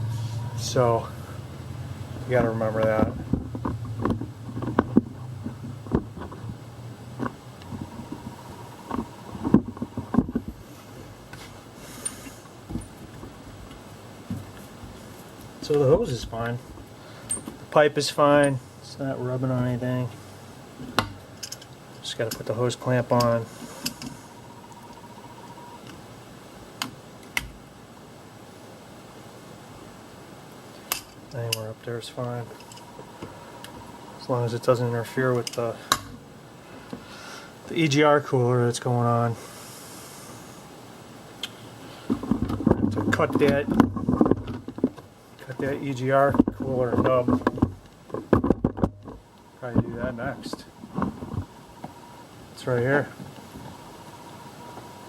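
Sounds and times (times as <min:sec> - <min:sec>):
low background hiss: 0:00.0 - 0:55.0
steady low hum: 0:00.0 - 0:55.0
clicks and knocks of parts handled: 0:17.2 - 0:17.6, 0:20.8 - 0:22.5, 0:30.8 - 0:31.6.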